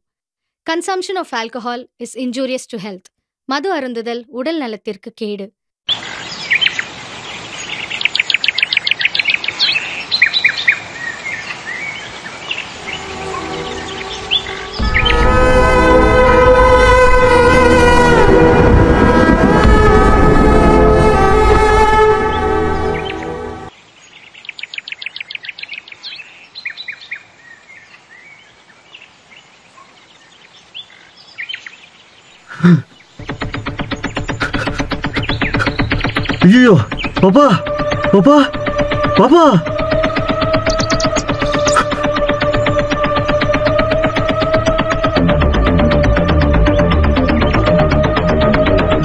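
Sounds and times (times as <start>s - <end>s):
birds singing: 5.9s - 15.3s, 22.2s - 44.0s
soft music: 12.8s - 23.7s, 32.6s - 49.0s.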